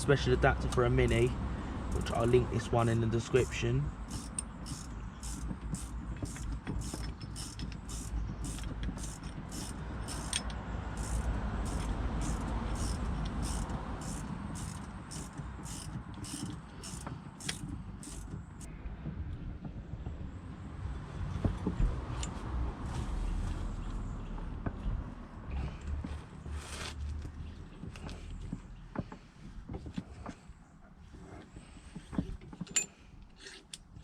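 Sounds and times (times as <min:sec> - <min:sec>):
brake caliper tool clicking: 0:03.4 - 0:18.5.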